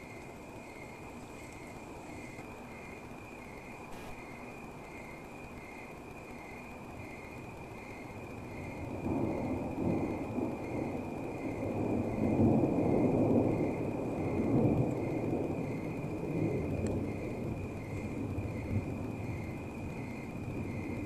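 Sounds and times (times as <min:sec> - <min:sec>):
rolling thunder: 0:08.5 - 0:21.0.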